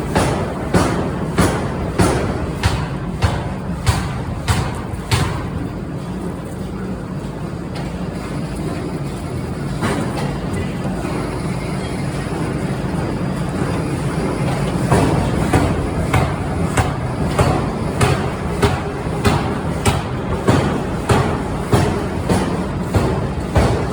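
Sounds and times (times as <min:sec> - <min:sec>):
power hammer striking metal: 0:00.1 - 0:05.6, 0:14.9 - 0:23.9.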